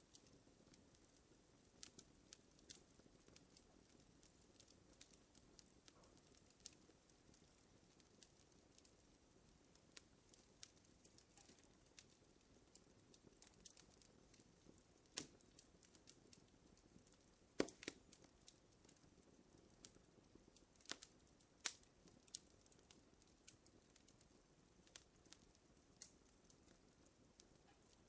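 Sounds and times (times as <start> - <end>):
faint low hiss: 0.0 - 28.0
wood fire crackling: 0.0 - 28.0.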